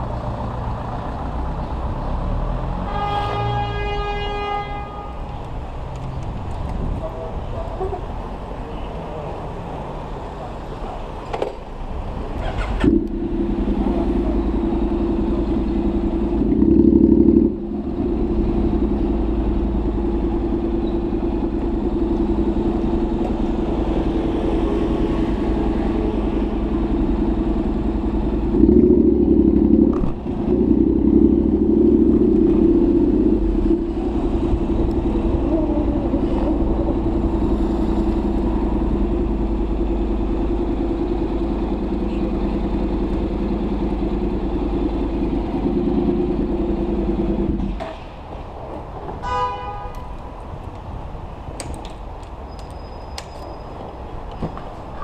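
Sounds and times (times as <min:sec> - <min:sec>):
motorcycle engine droning: 0:12.2 - 0:48.0.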